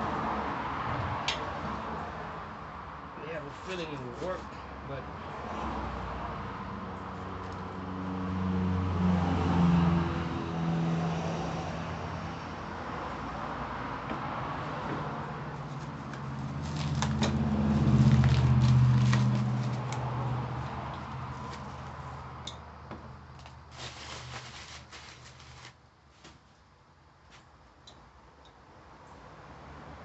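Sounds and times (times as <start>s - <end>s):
rustling and crinkling: 15.5s - 20.1s, 21.0s - 22.1s, 23.3s - 26.6s.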